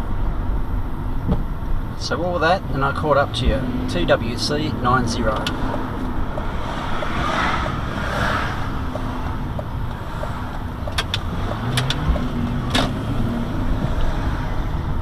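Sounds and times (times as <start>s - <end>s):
road and wind noise: 0.0s - 15.0s
engine note rising: 2.4s - 15.0s
sharp clicks: 8.9s - 13.0s.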